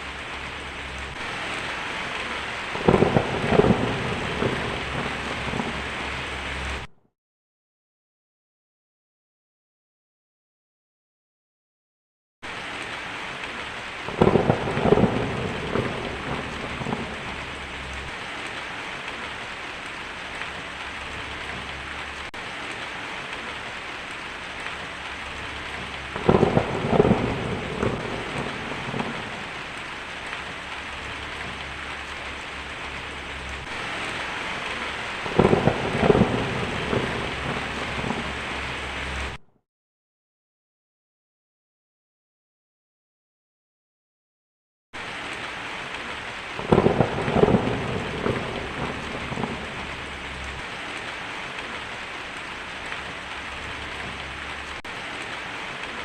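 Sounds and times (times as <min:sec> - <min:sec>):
heavy rain hissing: 0:00.0 - 0:06.9, 0:12.5 - 0:39.4, 0:45.0 - 0:56.0
thunder rumbling: 0:00.0 - 0:06.9, 0:13.5 - 0:39.4, 0:46.2 - 0:56.0.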